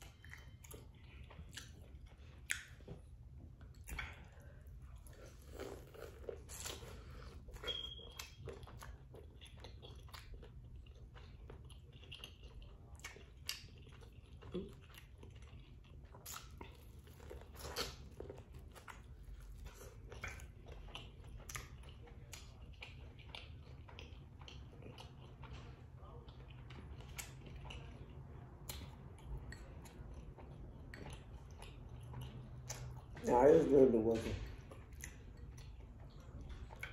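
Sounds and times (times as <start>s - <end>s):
faint low hum: 0.0s - 36.9s
person biting and chewing corn: 3.7s - 27.9s.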